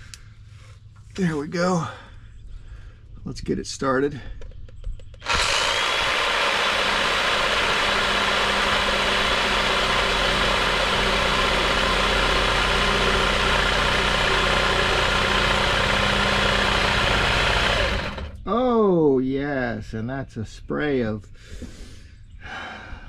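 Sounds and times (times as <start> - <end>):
reciprocating saw cutting plastic pipe: 5.2 - 18.4.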